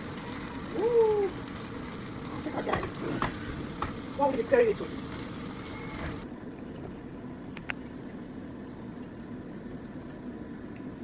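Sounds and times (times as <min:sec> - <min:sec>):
food frying in a pan: 0:00.0 - 0:06.3.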